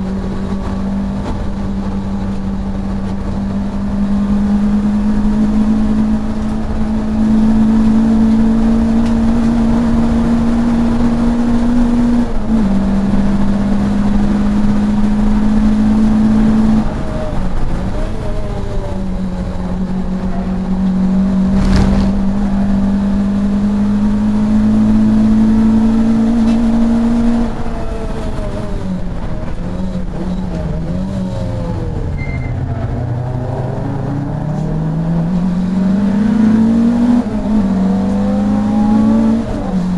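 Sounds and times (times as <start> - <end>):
racing car engine at high revs: 0.0 - 39.9
sharp knock: 21.5 - 22.5.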